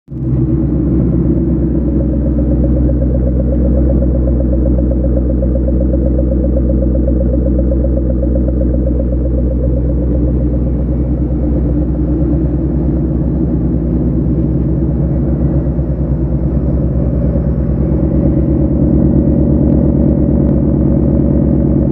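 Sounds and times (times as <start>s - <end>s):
car engine idling: 0.1s - 21.9s.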